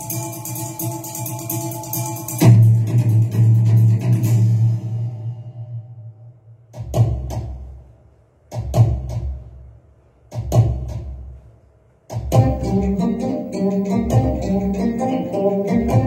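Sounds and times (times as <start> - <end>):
drum strokes with deep boom: 0.7 - 5.6, 6.6 - 7.9, 8.5 - 9.7, 10.3 - 11.4, 12.1 - 13.2.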